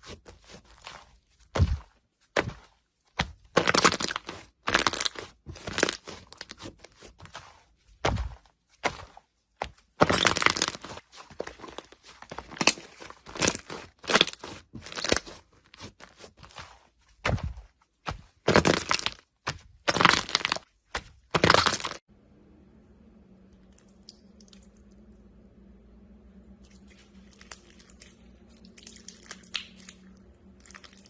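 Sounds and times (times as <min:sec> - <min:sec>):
slime crackling and crunching: 0:00.0 - 0:22.1, 0:26.7 - 0:31.0.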